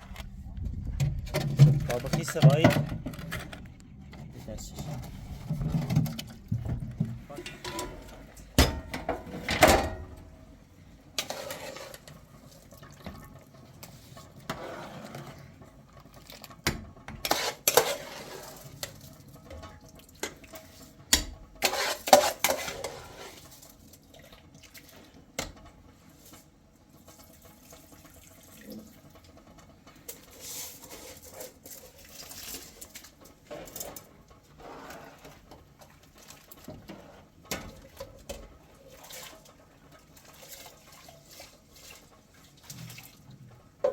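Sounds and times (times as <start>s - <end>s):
dishes and pots clinking: 4.7s - 10.4s, 16.6s - 23.2s.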